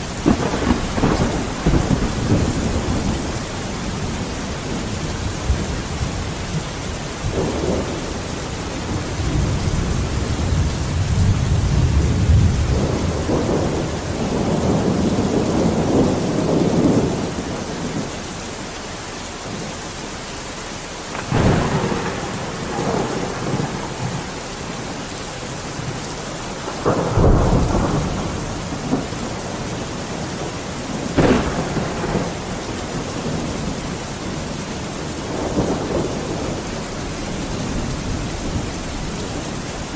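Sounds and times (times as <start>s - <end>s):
rolling thunder rumble: 0.0s - 18.2s, 21.1s - 39.9s
steady rain: 0.0s - 39.9s
sharp thunder cracks: 0.2s - 5.8s, 21.1s - 34.5s.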